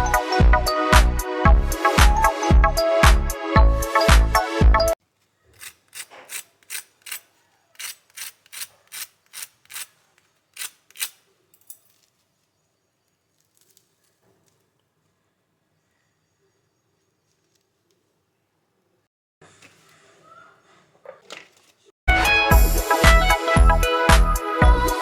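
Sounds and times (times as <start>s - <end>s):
short rasping strokes: 5.5s - 11.2s
intro music: 22.1s - 24.4s.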